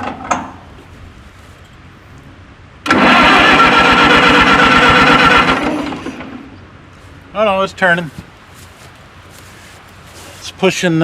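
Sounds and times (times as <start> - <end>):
starter motor whine: 2.8 - 6.5
tractor engine cranking: 2.8 - 6.6.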